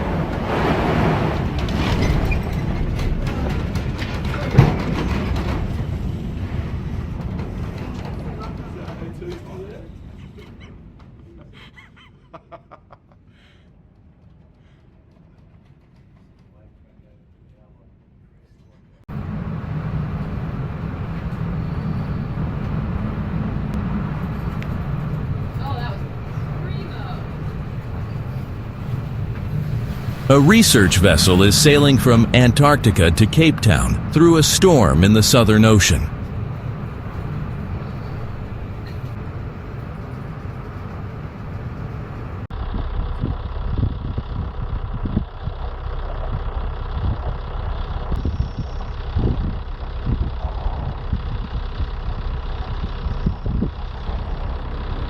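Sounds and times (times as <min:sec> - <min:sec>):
ship engine rumble: 0:19.2 - 0:42.4.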